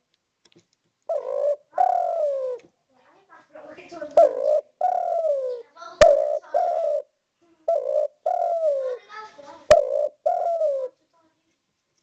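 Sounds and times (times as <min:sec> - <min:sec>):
dove cooing: 0:01.1 - 0:02.7, 0:03.9 - 0:11.0.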